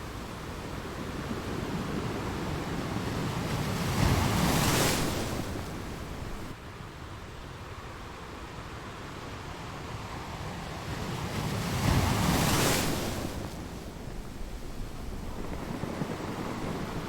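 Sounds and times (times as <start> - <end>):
ocean waves crashing: 0.0 - 6.6.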